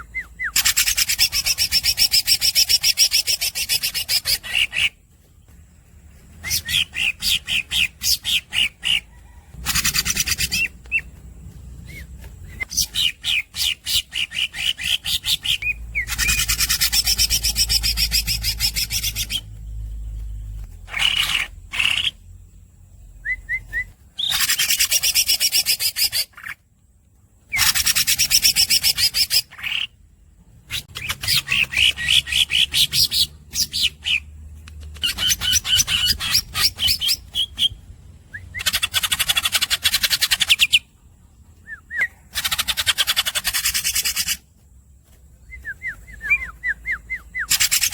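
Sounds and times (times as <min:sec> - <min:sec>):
squeaky bird chirps: 0:00.0 - 0:05.0, 0:06.4 - 0:11.1, 0:11.8 - 0:19.6, 0:20.5 - 0:22.2, 0:23.3 - 0:26.6, 0:27.5 - 0:30.0, 0:30.7 - 0:41.0, 0:41.6 - 0:44.4, 0:45.6 - 0:47.9.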